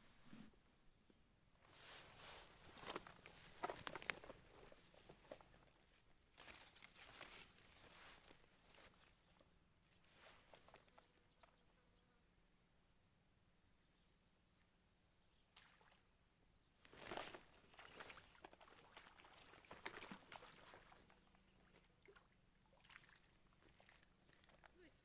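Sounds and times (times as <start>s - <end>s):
soft rustles and clicks: 1.6s - 11.5s.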